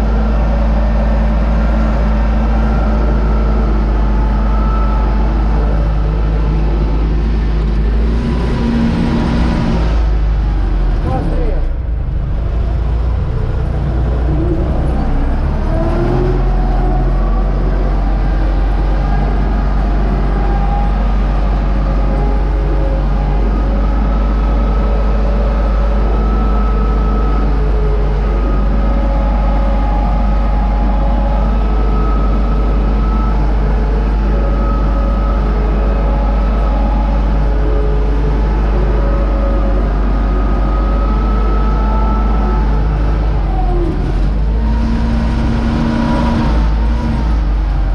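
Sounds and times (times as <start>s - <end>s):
faint whining tones: 0.0s - 47.9s
tractor diesel engine running: 0.0s - 47.9s.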